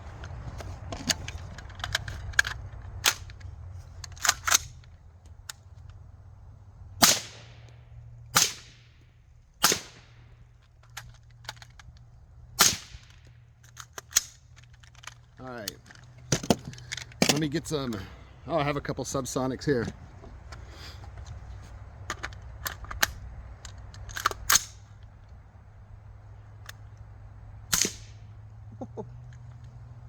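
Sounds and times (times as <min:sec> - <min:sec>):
gun handling clicks: 0:00.2 - 0:06.0, 0:09.6 - 0:18.0, 0:22.0 - 0:25.4, 0:26.6 - 0:27.1, 0:27.7 - 0:28.2
suppressed rifle shots: 0:07.0 - 0:07.7, 0:08.3 - 0:09.0, 0:09.6 - 0:10.3, 0:12.6 - 0:13.2, 0:27.7 - 0:28.2.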